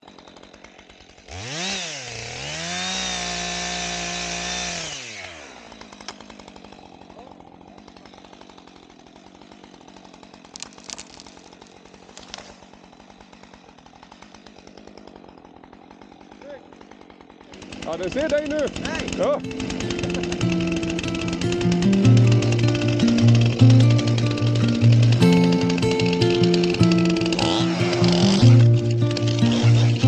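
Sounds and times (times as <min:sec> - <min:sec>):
chainsaw idling and revving: 0:00.0 - 0:30.0.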